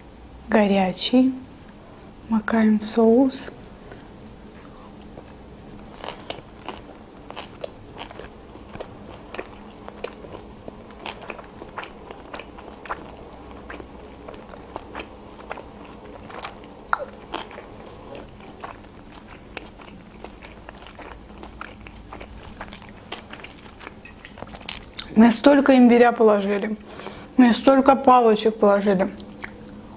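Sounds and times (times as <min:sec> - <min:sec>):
wet chewing crunches: 0:05.0 - 0:25.2, 0:29.2 - 0:29.8.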